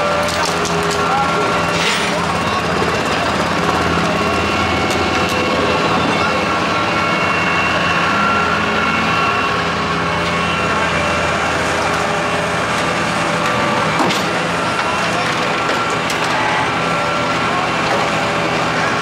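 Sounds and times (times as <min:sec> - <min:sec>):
steady whine: 0:00.0 - 0:19.0
truck engine running: 0:00.0 - 0:19.0.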